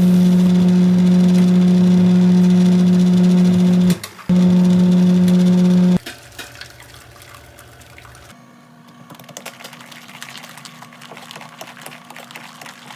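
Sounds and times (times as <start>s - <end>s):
water running off: 0.0s - 6.0s.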